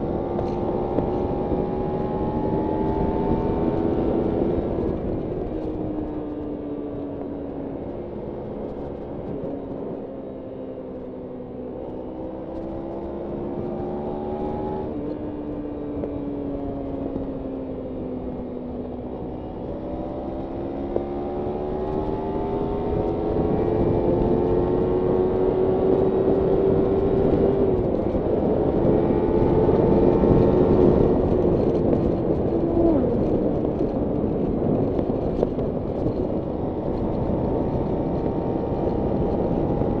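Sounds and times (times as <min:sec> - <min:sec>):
wind noise: 0:00.0 - 0:40.0
motorcycle engine revving: 0:11.9 - 0:17.5, 0:18.2 - 0:40.0.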